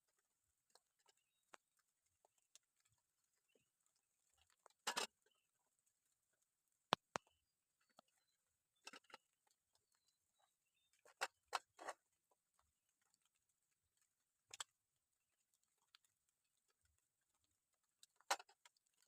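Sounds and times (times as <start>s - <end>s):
water drops dripping: 7.0s - 7.4s.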